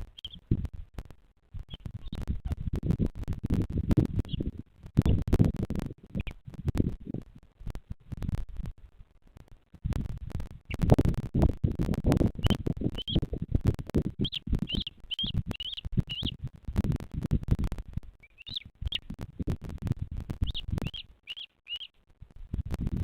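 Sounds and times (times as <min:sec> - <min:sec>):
bird chirping: 0:00.0 - 0:00.5, 0:01.6 - 0:02.3, 0:04.2 - 0:05.2, 0:12.3 - 0:13.4, 0:14.0 - 0:16.4, 0:18.2 - 0:19.2, 0:20.4 - 0:22.0.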